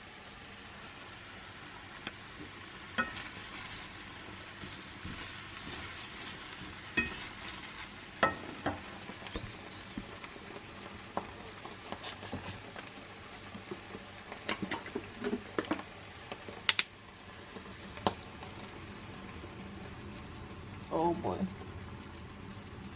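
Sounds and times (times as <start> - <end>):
sauce sizzling in a pan: 0.0 - 22.9
utensil clicking against pan: 16.6 - 16.9.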